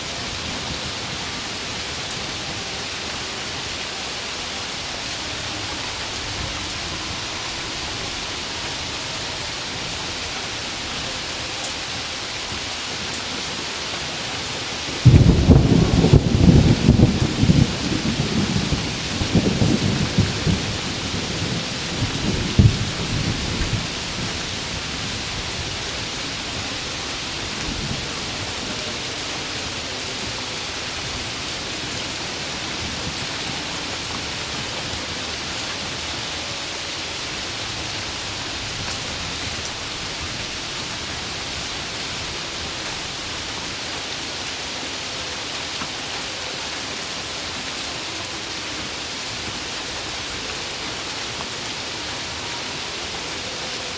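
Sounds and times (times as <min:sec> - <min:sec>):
heavy rain: 0:00.0 - 0:53.9
thunder rumble with crack: 0:14.8 - 0:36.5.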